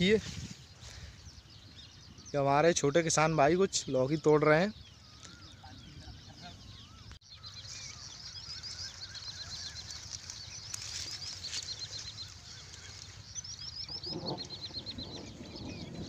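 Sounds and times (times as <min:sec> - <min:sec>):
rustling noise: 0:00.0 - 0:01.0, 0:07.7 - 0:14.4
wind rumble on microphone: 0:00.0 - 0:03.8, 0:04.7 - 0:16.0
small birds chirping: 0:00.0 - 0:16.0.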